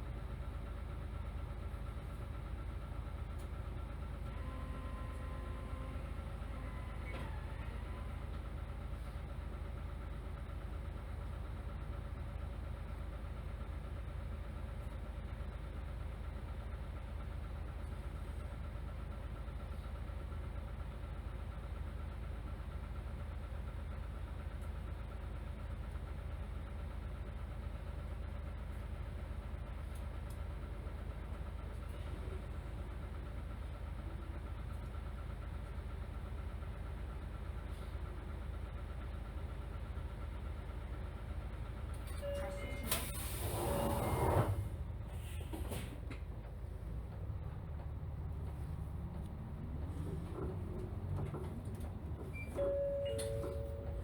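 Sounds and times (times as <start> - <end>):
bus diesel engine idling: 0.0 - 54.0
short electronic tones: 42.1 - 44.2.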